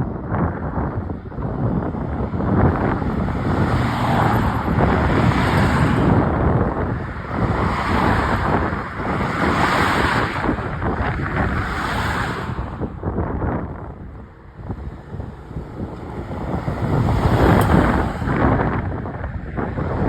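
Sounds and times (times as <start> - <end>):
strong wind on microphone: 0.0 - 20.0.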